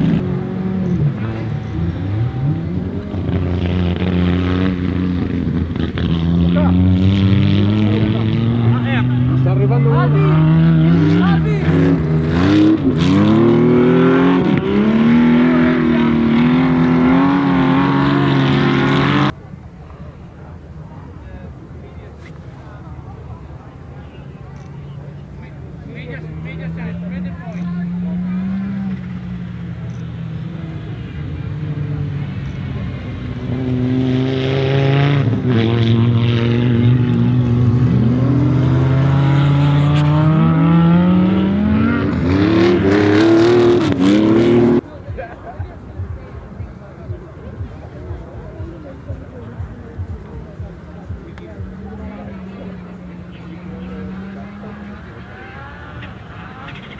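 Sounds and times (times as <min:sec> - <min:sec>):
turbocharged car engine under load: 0:00.0 - 0:19.4, 0:22.6 - 0:56.9
turbocharged engine running hard: 0:25.6 - 0:44.9.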